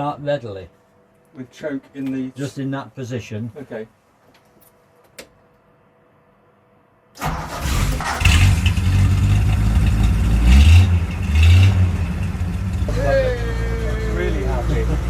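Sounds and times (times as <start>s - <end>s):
van engine starting and revving: 7.2s - 15.0s.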